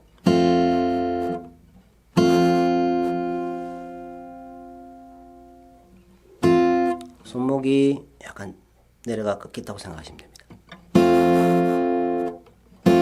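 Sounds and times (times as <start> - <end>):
acoustic guitar strumming: 0.0 - 7.5, 10.6 - 13.0.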